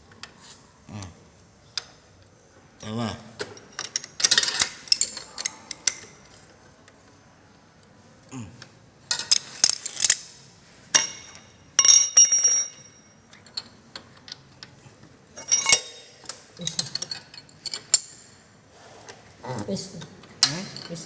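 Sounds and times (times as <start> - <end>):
metal tools clinking: 3.4 - 6.4, 10.9 - 18.4, 20.4 - 21.0.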